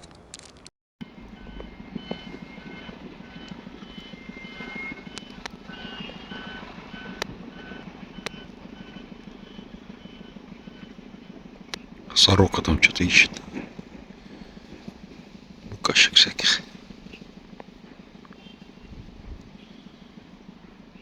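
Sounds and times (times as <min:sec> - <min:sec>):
reversing alarm beeps: 0:01.0 - 0:18.9
heavy vehicle engine running: 0:01.0 - 0:21.0.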